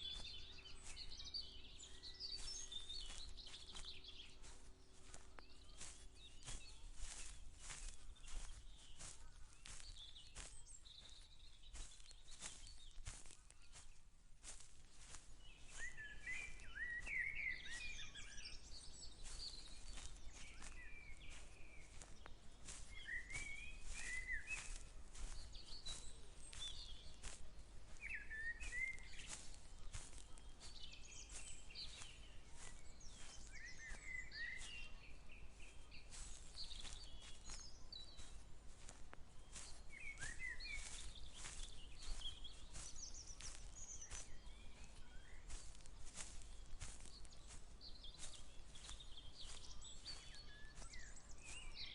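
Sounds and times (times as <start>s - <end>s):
songbirds warbling: 0.0s - 51.9s
footsteps clicking and rustling: 2.1s - 34.8s.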